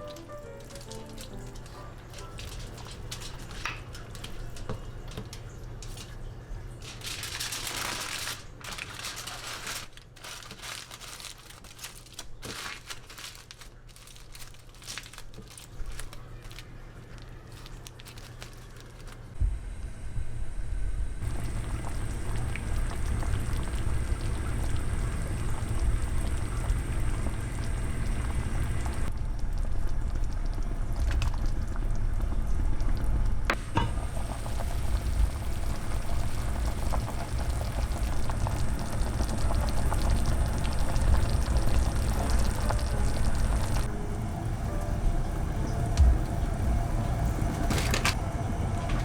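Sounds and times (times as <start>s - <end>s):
water bubbling at a boil: 21.2s - 43.9s.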